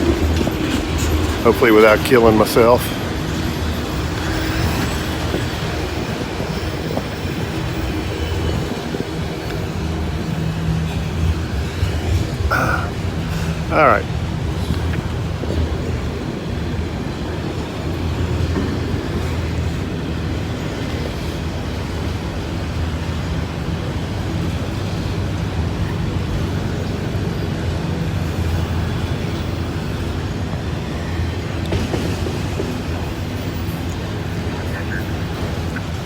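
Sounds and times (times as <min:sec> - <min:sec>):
low drone: 0:00.0 - 0:20.5
steel wheels running on rails: 0:00.0 - 0:36.0.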